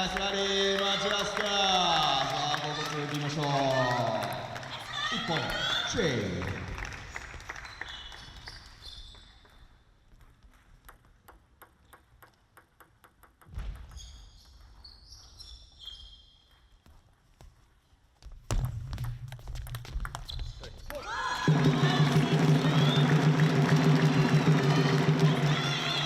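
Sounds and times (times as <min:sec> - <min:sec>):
sneaker squeaks on floor: 0:07.9 - 0:09.6, 0:13.8 - 0:16.8, 0:20.2 - 0:20.9
table tennis ball bouncing: 0:10.7 - 0:14.1, 0:18.5 - 0:21.8.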